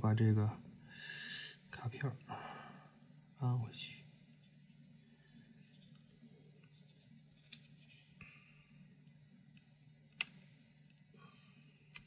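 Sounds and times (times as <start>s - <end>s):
faint low hum: 0.0s - 12.0s
clip clicking and scraping: 7.4s - 8.1s.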